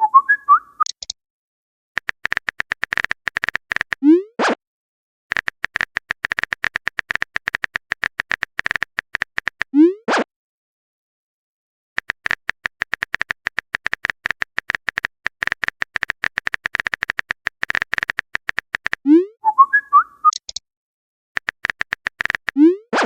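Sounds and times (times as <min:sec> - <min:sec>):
phone keyboard typing clicks: 0:02.0 - 0:04.0, 0:05.3 - 0:09.7, 0:12.0 - 0:19.1, 0:21.4 - 0:23.0.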